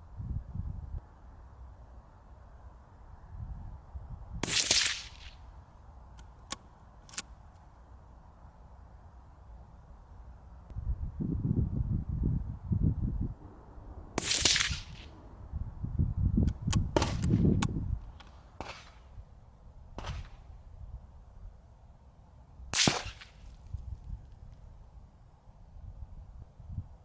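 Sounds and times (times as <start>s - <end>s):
suppressed rifle shots: 4.4s - 5.4s, 6.2s - 7.3s, 14.2s - 15.4s, 16.5s - 19.2s, 19.9s - 20.5s, 22.8s - 23.6s
faint clicks: 6.2s - 7.7s.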